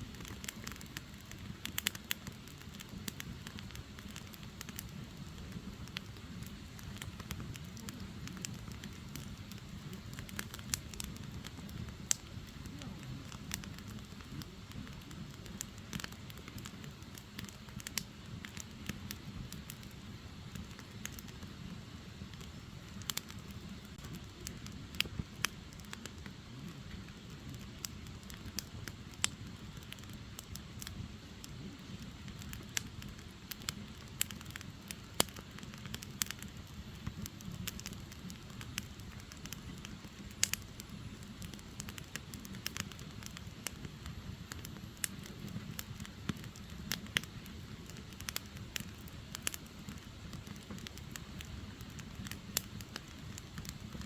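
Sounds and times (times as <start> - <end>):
fire crackling and popping: 0.0 - 54.0
flames rumbling: 0.0 - 54.0.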